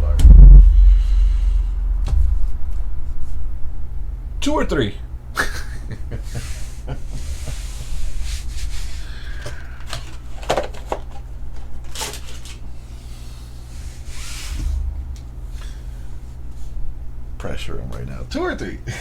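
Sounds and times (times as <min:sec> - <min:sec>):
steady low hum: 0:00.0 - 0:19.0
card packs rustling: 0:09.0 - 0:12.8.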